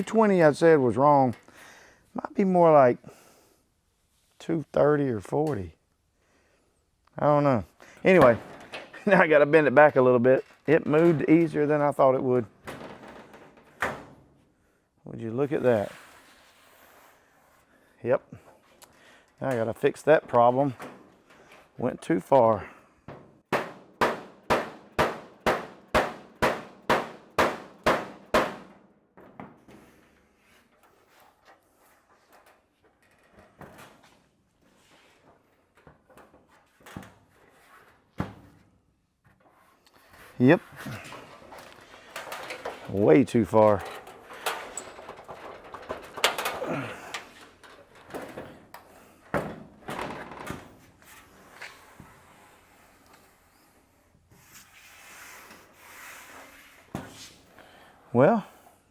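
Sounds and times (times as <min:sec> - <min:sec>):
hammer clanging on sheet steel: 0:23.5 - 0:28.8
faint metal clanks: 0:40.8 - 0:50.2.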